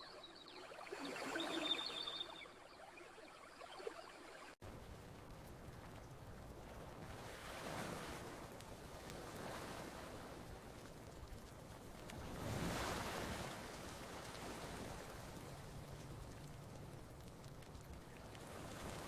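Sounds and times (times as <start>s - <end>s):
ocean waves washing onto beach: 4.5s - 19.0s.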